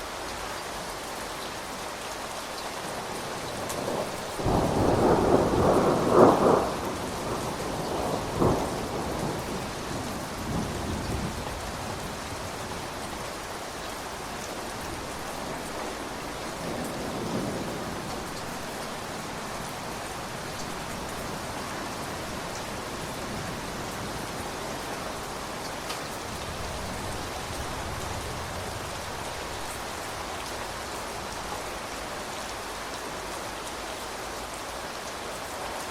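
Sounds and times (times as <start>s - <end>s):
steady rain: 0.0s - 35.9s
thunder rumbling: 3.5s - 13.0s.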